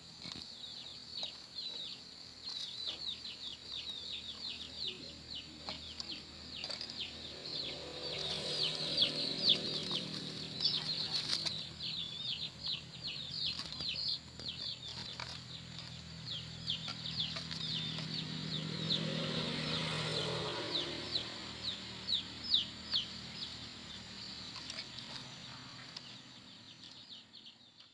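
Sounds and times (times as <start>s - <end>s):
quail chirping: 0.6s - 27.9s
low hum: 4.5s - 13.6s.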